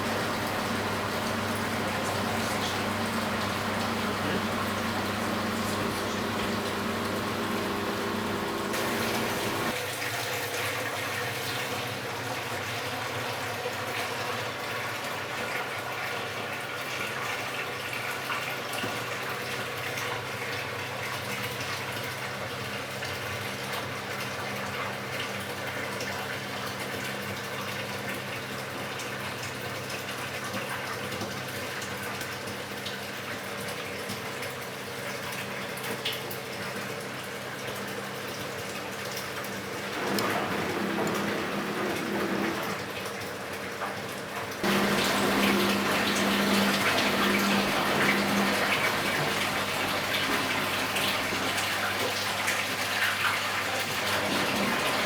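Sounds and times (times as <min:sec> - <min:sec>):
motor or pump tone: 0:00.0 - 0:09.8, 0:39.6 - 0:43.0, 0:44.6 - 0:52.4, 0:53.9 - 0:55.0
water running into washing machine: 0:00.0 - 0:55.0.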